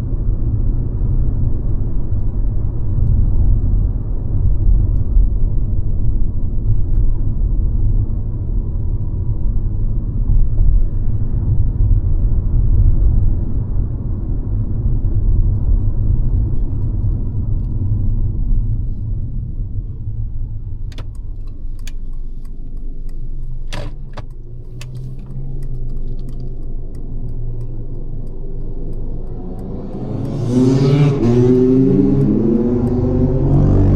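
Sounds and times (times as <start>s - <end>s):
car engine rumble while driving: 0.0s - 33.9s
sharp clicks: 20.9s - 30.5s.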